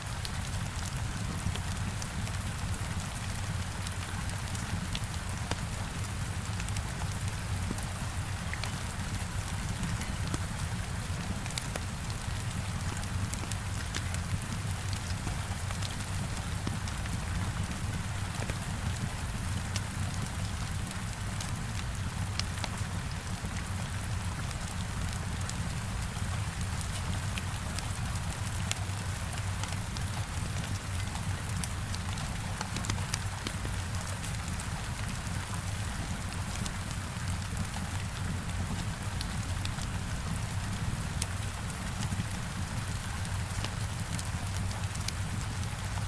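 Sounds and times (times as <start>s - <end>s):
heavy rain on a window: 0.0s - 46.0s
wood fire crackling: 34.7s - 45.9s.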